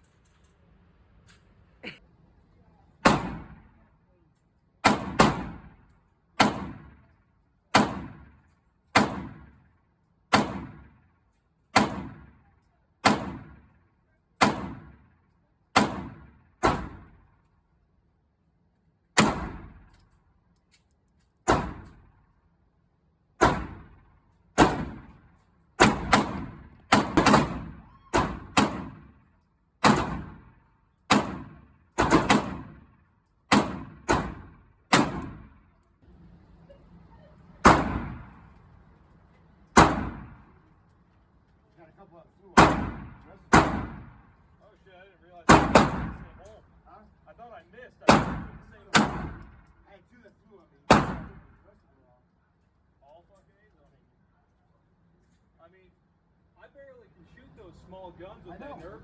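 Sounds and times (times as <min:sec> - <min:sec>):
gunshots with echo: 0:03.0 - 0:03.8, 0:04.8 - 0:05.8, 0:06.4 - 0:07.1, 0:07.7 - 0:08.4, 0:09.0 - 0:09.6, 0:10.3 - 0:11.0, 0:11.8 - 0:12.4, 0:13.0 - 0:13.6, 0:14.4 - 0:15.0, 0:15.8 - 0:17.2, 0:19.2 - 0:19.9, 0:21.5 - 0:22.1, 0:23.4 - 0:25.2, 0:25.8 - 0:29.2, 0:29.8 - 0:35.6, 0:37.6 - 0:38.5, 0:39.7 - 0:40.6, 0:42.6 - 0:44.3, 0:45.5 - 0:46.4, 0:48.1 - 0:49.6, 0:50.9 - 0:51.5.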